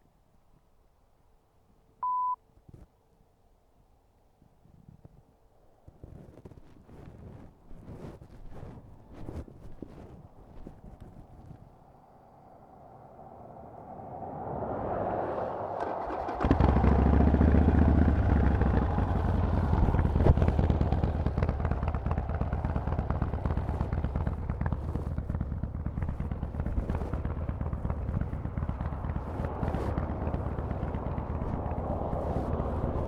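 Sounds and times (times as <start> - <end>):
motorcycle engine idling: 15.8 - 33.0.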